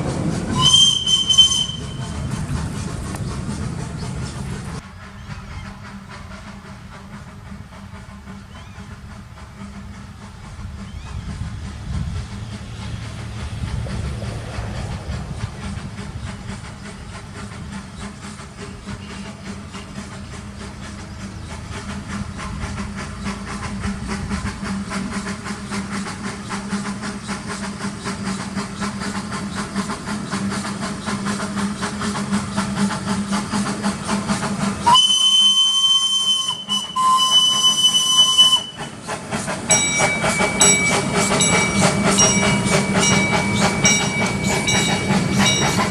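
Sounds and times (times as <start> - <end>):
miniature steam locomotive hissing: 0.0 - 45.9
steam whistle blasts: 0.5 - 2.2, 34.8 - 39.0.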